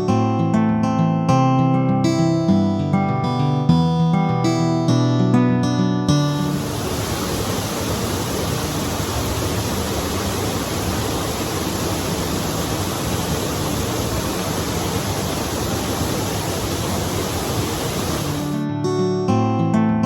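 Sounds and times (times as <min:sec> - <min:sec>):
rushing water: 0:06.4 - 0:18.6.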